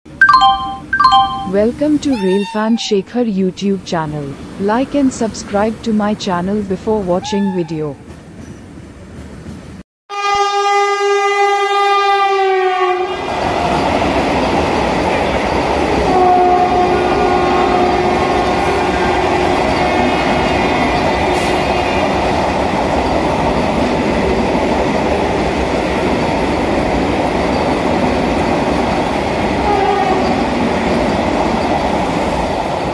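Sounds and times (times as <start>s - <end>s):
train horn blast: 2.1s - 2.8s, 10.1s - 13.3s, 16.0s - 19.5s, 29.6s - 30.3s
train wheels rushing on rail: 8.0s - 9.8s, 13.1s - 32.9s.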